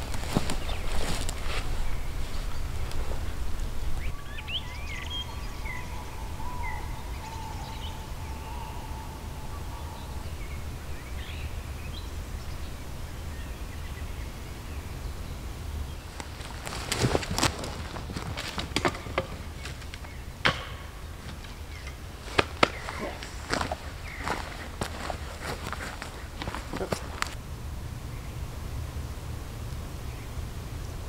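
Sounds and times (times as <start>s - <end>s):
faint steady tone: 0.0s - 17.2s
birds chirping: 0.0s - 31.0s
low background rumble: 0.0s - 31.0s.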